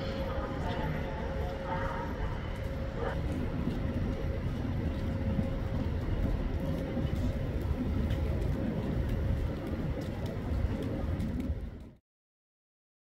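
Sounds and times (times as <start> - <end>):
city street traffic rumble: 0.0 - 12.0
faint constant hum: 0.0 - 12.0.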